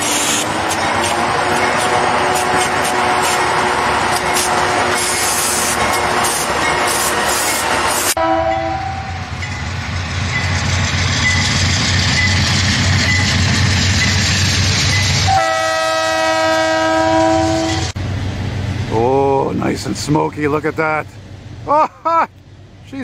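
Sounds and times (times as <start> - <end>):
locomotive air horn: 0.0 - 7.1, 8.0 - 9.2, 15.2 - 18.0
diesel locomotive engine drone: 0.0 - 23.0
rail noise: 0.0 - 23.0.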